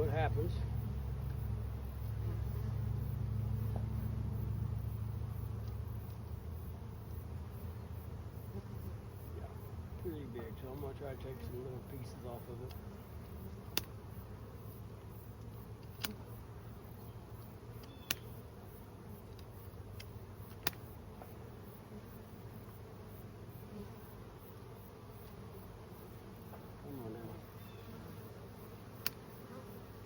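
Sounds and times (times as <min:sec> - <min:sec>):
bees buzzing: 0:00.0 - 0:30.0
pruning cutters snipping: 0:15.8 - 0:16.2, 0:19.4 - 0:20.8.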